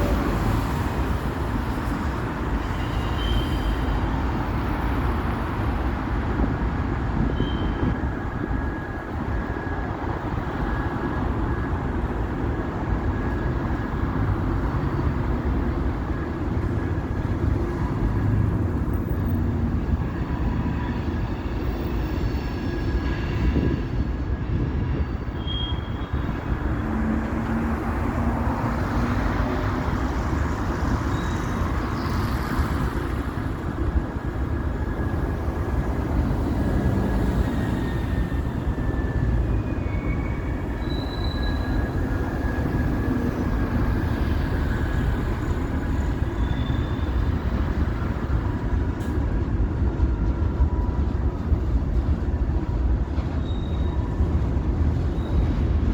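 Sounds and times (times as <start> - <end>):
train rumbling on rails: 0.0 - 55.9
high squeals: 37.4 - 47.4.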